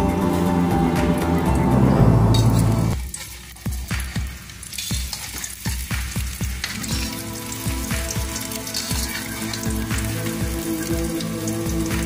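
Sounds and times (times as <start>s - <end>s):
background music with beat: 0.0s - 12.0s
metal spatula turning food: 2.3s - 12.0s
omelette sizzling in oil: 2.9s - 12.0s.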